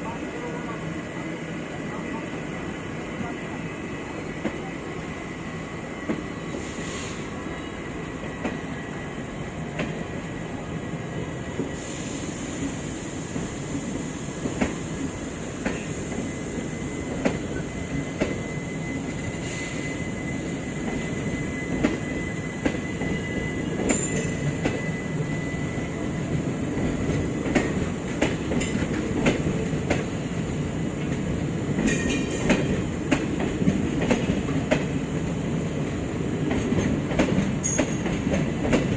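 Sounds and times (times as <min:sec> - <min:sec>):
train wheels clicking over rail joints: 0:26.7 - 0:30.2, 0:31.0 - 0:35.4.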